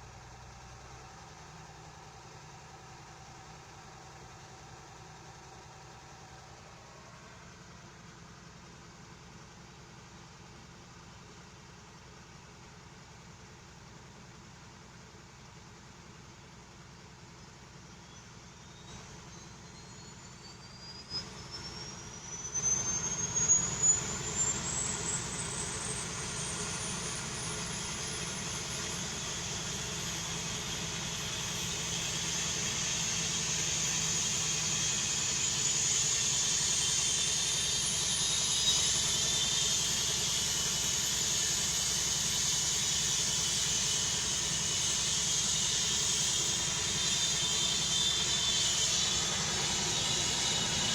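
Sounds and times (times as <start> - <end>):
helicopter turbine whine: 19.3 - 50.9.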